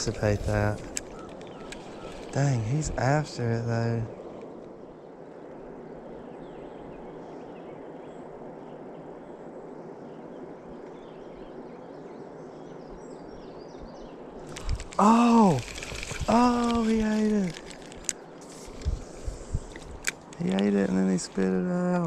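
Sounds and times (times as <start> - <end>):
river water flowing: 0.6 - 3.2
faint bird chirps: 1.0 - 2.5.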